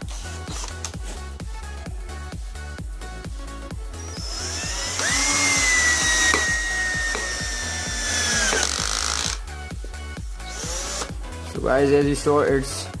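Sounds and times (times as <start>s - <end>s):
cordless drill motor whining: 0.0s - 1.0s, 4.0s - 9.4s, 10.4s - 11.1s
background music with steady beat: 0.0s - 13.0s.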